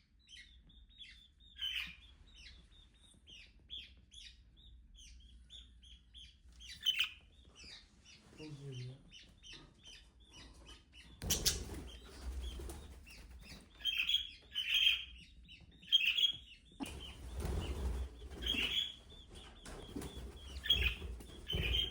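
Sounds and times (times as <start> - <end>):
budgerigar chirping: 0.3 - 2.5, 3.3 - 7.8, 13.8 - 17.2, 20.6 - 21.9
wing flapping: 16.8 - 18.9.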